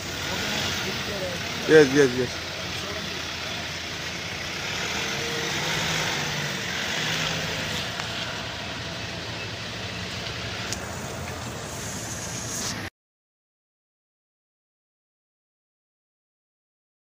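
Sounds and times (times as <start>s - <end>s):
car engine running: 0.0s - 12.9s
street noise: 0.0s - 12.9s.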